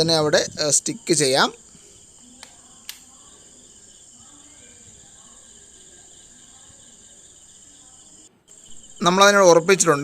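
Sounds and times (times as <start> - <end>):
crickets chirping: 0.0 - 10.0
short clicks: 2.4 - 3.1.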